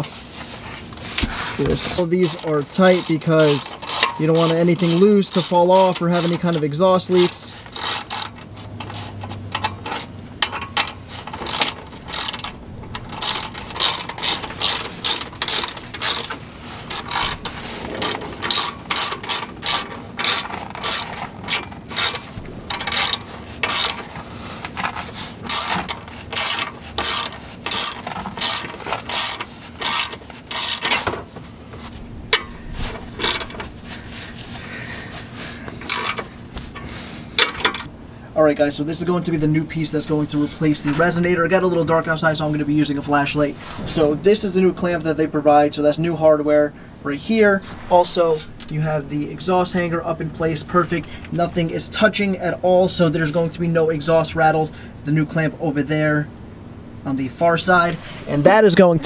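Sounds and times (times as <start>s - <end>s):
ratchet wrench clicking: 2.0s - 31.2s, 35.8s - 36.8s.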